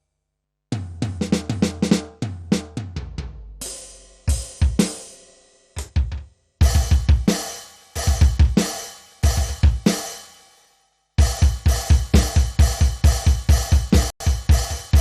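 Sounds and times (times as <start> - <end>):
bass drum: 0.7 - 3.6, 5.8 - 7.4, 8.0 - 8.7, 9.3 - 9.9, 11.2 - 15.0.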